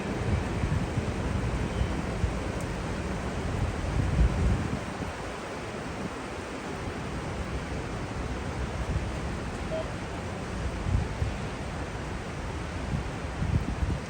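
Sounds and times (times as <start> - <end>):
rain hissing: 0.0 - 10.3
wind buffeting microphone: 0.0 - 14.0.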